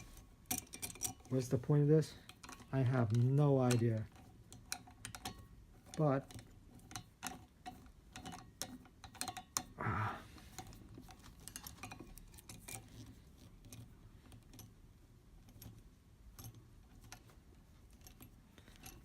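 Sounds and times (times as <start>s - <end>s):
corkscrew clicking and rattling: 0.0s - 19.0s.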